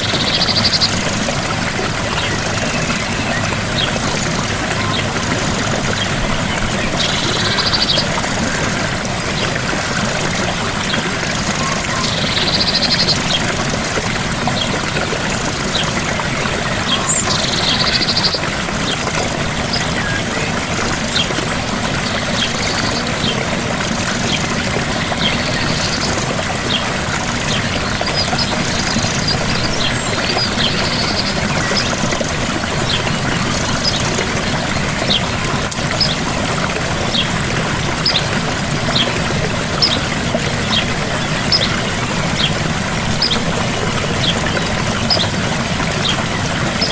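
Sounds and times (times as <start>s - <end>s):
small waterfall splashing: 0.0s - 46.9s.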